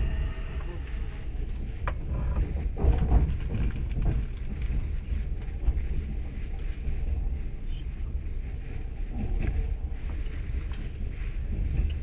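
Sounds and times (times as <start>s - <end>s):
train wheels rumbling on rails: 0.0s - 12.0s
knocks and rattles: 1.5s - 6.2s.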